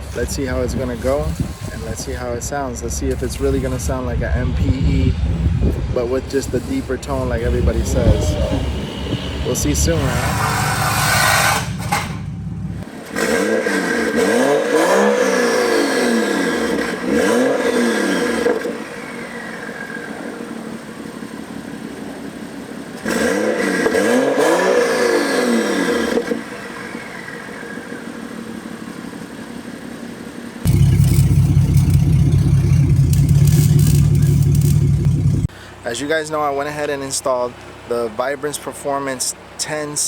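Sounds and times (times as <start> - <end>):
engine revving: 7.3 - 20.5, 23.0 - 28.1, 30.6 - 35.5
engine idling: 28.0 - 35.9.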